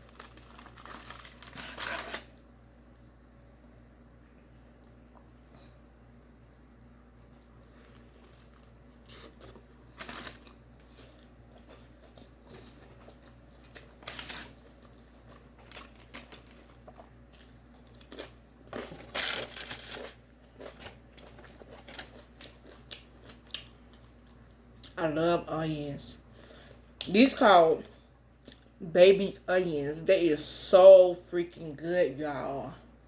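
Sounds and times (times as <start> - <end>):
food packaging crinkling: 0.0 - 2.4, 7.7 - 23.7
person chewing food: 6.1 - 24.9
food crunching: 6.2 - 25.0.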